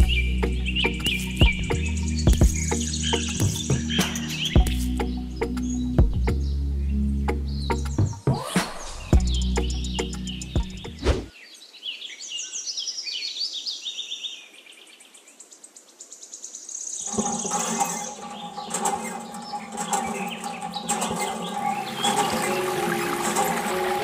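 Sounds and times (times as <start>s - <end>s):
bird trill: 0.0s - 8.2s, 17.0s - 24.0s
small birds chirping: 0.0s - 24.0s
steady hum: 17.1s - 24.0s.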